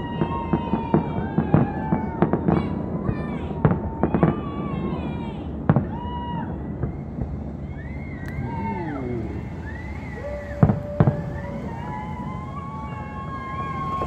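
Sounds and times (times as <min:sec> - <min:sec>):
fireworks bangs: 0:00.0 - 0:14.0
fireworks whistling: 0:05.5 - 0:14.0.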